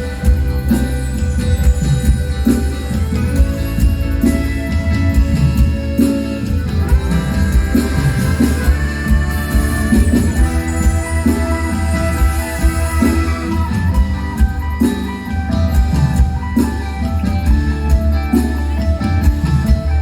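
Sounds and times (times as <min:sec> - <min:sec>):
live band playing instrumental music: 0:00.0 - 0:20.0.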